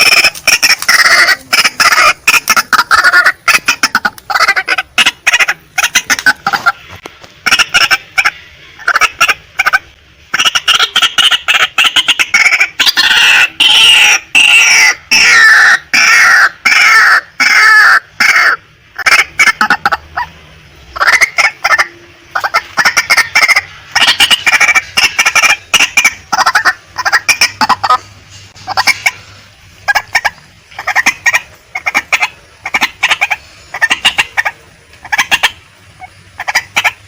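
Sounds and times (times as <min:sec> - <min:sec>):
waterhen calling: 0:00.0 - 0:37.0.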